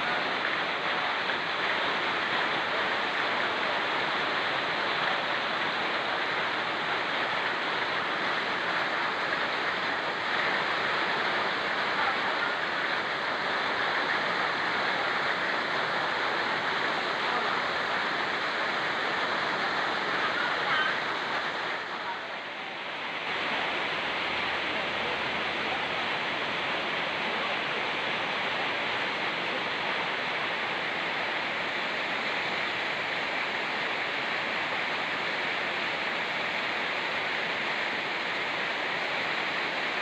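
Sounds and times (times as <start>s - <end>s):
mountain river rushing: 0.0s - 40.0s
rain falling: 0.0s - 40.0s.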